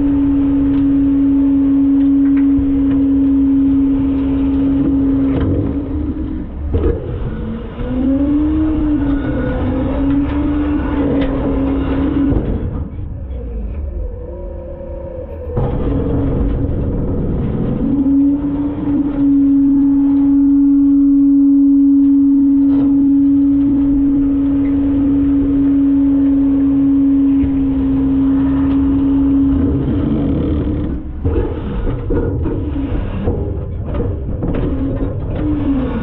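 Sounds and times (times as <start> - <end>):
garbage truck hydraulic whine: 0.0 - 36.0.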